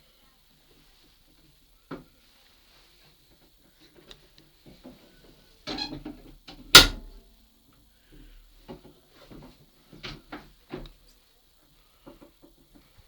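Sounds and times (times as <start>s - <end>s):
loud lever clunk: 6.8s - 7.1s.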